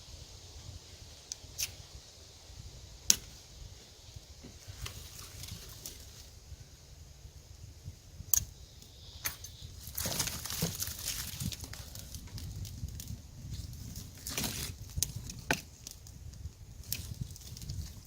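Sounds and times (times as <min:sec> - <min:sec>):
kindling crackling: 0:09.1 - 0:18.0.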